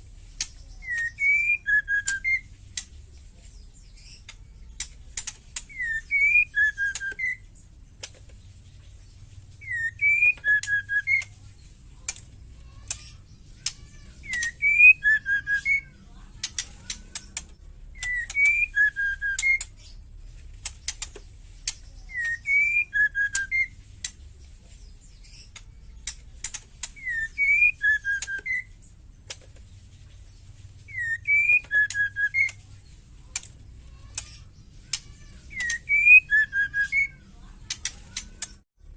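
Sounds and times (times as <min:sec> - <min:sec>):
bird ticking rattle calls: 0:00.3 - 0:38.6
bird whistled call: 0:00.8 - 0:02.5, 0:05.6 - 0:07.5, 0:09.6 - 0:11.3, 0:13.6 - 0:15.9, 0:18.0 - 0:19.8, 0:22.1 - 0:23.8, 0:26.9 - 0:28.8, 0:30.9 - 0:32.6, 0:35.5 - 0:37.2.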